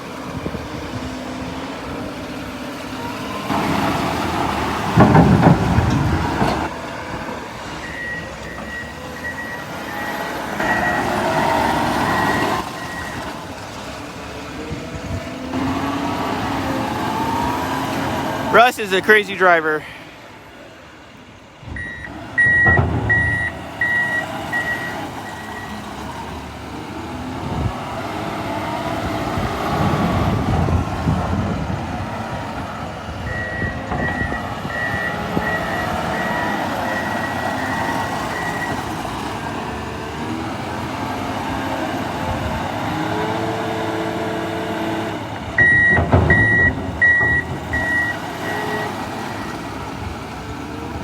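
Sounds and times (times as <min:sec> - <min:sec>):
diesel engine working: 0:00.0 - 0:51.0
loud clunks: 0:03.5 - 0:07.3, 0:22.2 - 0:25.1, 0:45.4 - 0:49.4
reversing alarm beeping: 0:21.8 - 0:25.8, 0:33.2 - 0:38.8, 0:45.6 - 0:49.5.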